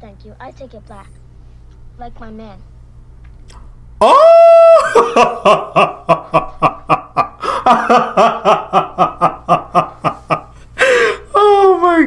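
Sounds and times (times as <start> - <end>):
woman laughing: 4.6 - 11.8.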